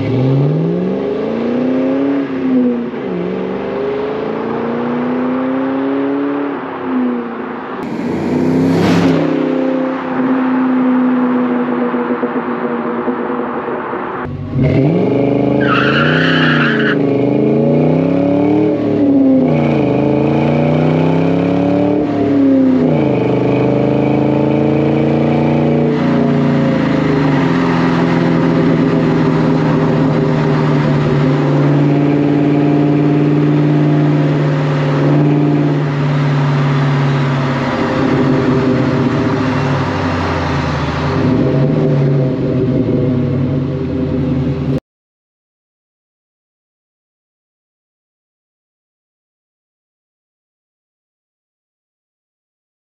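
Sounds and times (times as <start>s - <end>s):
car engine accelerating through gears: 0.0s - 44.8s
high squeal: 15.6s - 17.0s.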